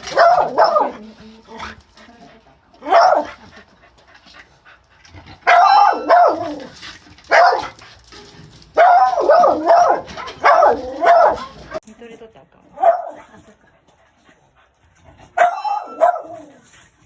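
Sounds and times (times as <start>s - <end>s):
dog barking: 0.1s - 1.0s, 2.8s - 3.4s, 5.4s - 6.6s, 7.3s - 7.8s, 8.8s - 11.6s, 12.8s - 13.3s, 15.4s - 16.5s.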